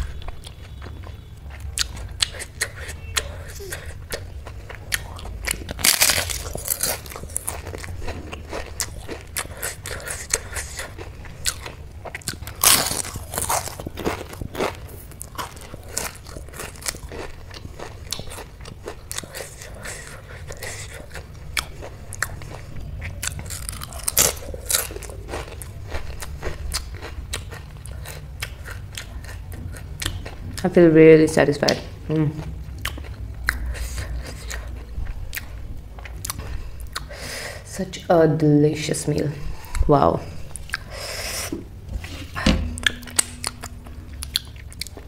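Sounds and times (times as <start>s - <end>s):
crunching and chewing crisp snack: 0.0s - 30.8s, 32.4s - 37.6s.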